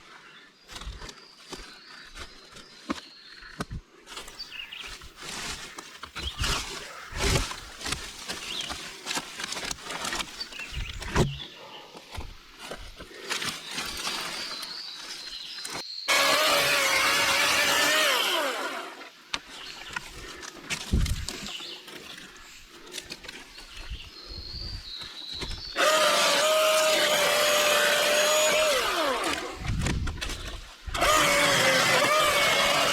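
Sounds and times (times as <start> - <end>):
brush crunching and knocking: 4.1 - 11.4, 12.1 - 23.9, 25.3 - 32.9
chainsaw running: 4.2 - 10.3, 16.1 - 19.1, 25.8 - 29.8, 31.0 - 32.9.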